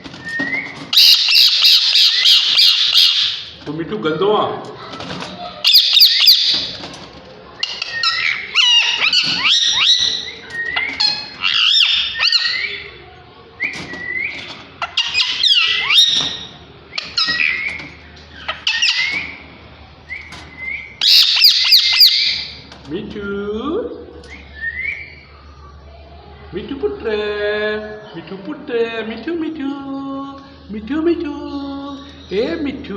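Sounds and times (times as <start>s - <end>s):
parakeets shrill squawks and chirps: 0.2s - 3.6s, 4.8s - 22.6s.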